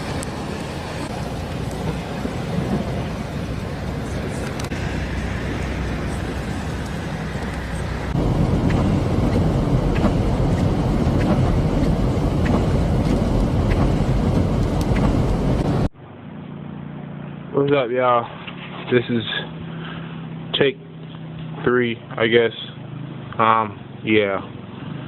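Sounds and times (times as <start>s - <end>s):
storm wind on microphone: 0.0s - 15.9s
steady low hum: 0.0s - 17.6s.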